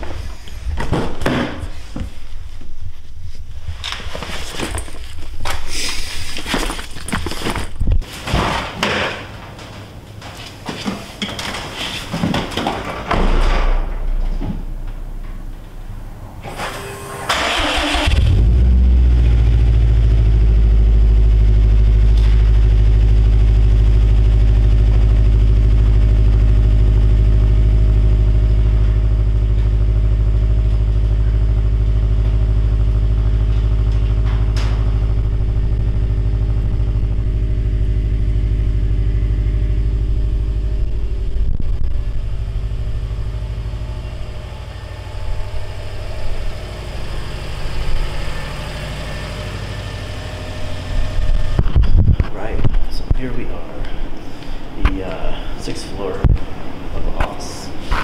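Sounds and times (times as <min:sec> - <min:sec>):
car engine starter cranking: 0:16.5 - 0:18.8
car engine idling loudly: 0:17.5 - 0:52.5.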